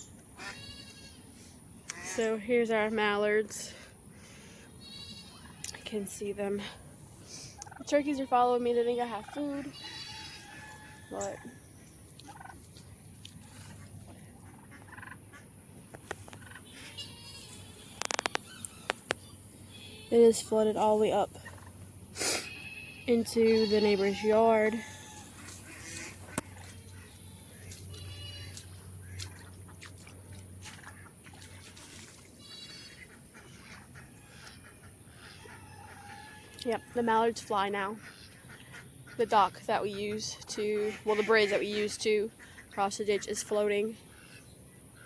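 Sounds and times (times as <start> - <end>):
farm birds calling: 0.0 - 45.0
turkeys purring and clucking: 6.5 - 45.0
trickle of water: 24.9 - 34.6.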